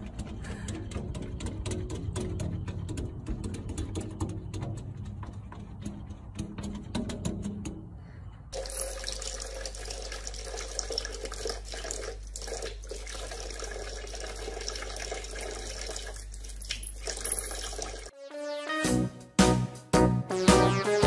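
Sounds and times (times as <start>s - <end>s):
tap water running: 8.6s - 18.1s.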